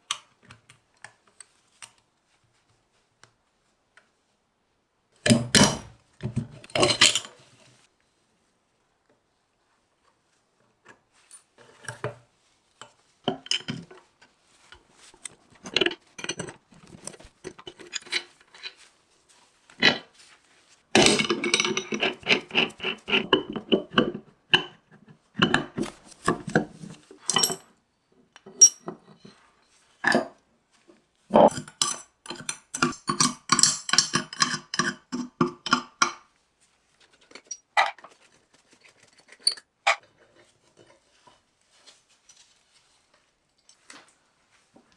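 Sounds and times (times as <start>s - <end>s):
metal parts and tools clinking: 6.7s - 7.4s, 15.1s - 18.8s, 21.0s - 23.6s, 25.8s - 27.6s, 28.6s - 28.9s, 31.3s - 35.0s, 39.2s - 39.7s.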